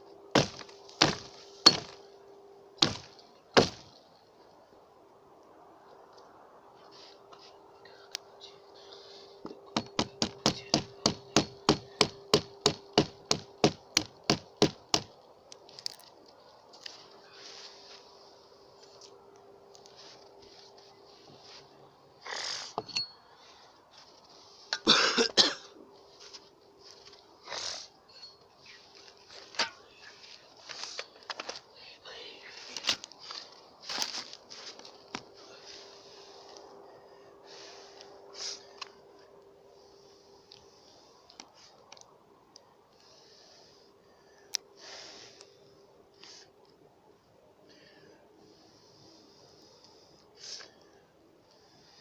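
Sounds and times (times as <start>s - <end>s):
short breathy hisses: 22.2s - 22.8s, 27.4s - 27.9s, 37.5s - 38.8s, 44.8s - 45.4s, 50.4s - 50.8s
person coughing: 24.8s - 25.8s.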